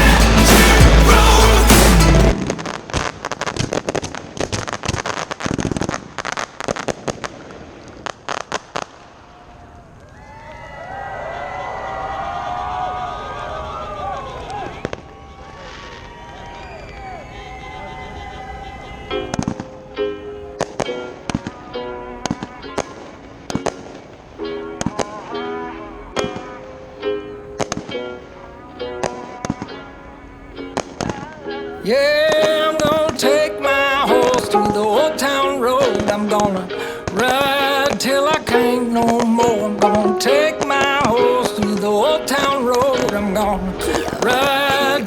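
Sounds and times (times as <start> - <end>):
background music: 0.0 - 2.8, 19.1 - 45.0
fireworks crackling pops: 1.7 - 10.2, 19.3 - 19.8, 20.6 - 26.7, 27.5 - 29.8, 30.6 - 45.0.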